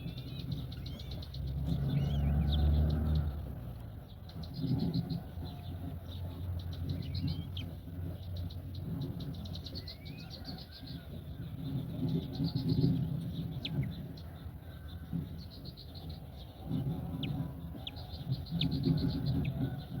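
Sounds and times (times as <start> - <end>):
gliding whistled bird calls: 0.0 - 3.4, 4.0 - 20.0
birds chirping in trills: 0.0 - 20.0
steady low rumble: 0.0 - 20.0.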